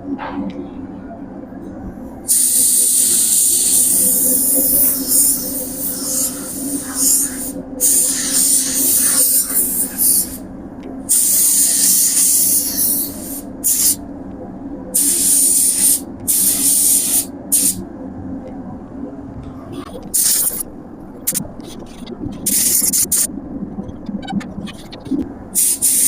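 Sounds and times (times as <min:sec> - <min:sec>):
steady low hum: 0:00.0 - 0:26.0
paint spray gun hissing: 0:15.0 - 0:17.8, 0:25.6 - 0:26.0.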